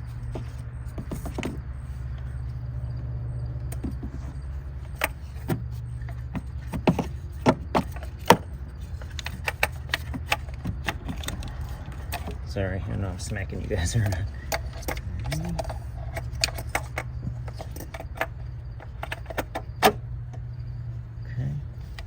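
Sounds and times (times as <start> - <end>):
steady low hum: 0.0 - 22.0
plastic parts clicking and knocking: 3.7 - 12.5, 13.2 - 20.4.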